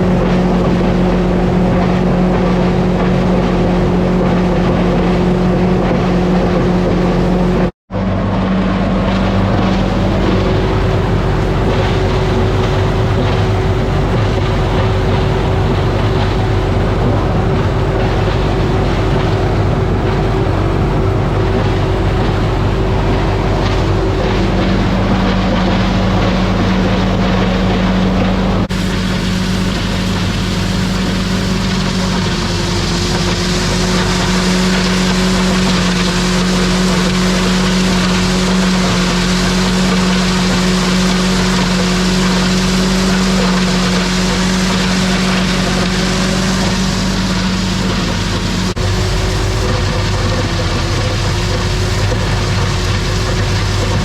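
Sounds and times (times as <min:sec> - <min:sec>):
grinder-mixer running: 0:00.0 - 0:54.0
tractor diesel engine running: 0:00.0 - 0:54.0.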